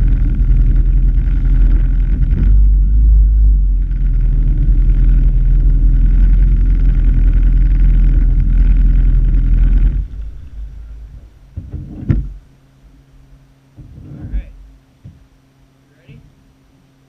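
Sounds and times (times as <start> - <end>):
jet ski engine running: 0.0 - 12.6.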